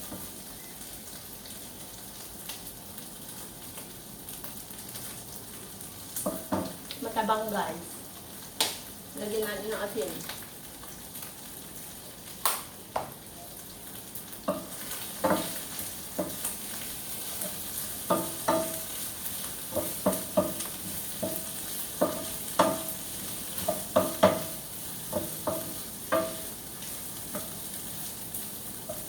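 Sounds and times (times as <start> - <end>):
frying sizzle: 0.0 - 29.0.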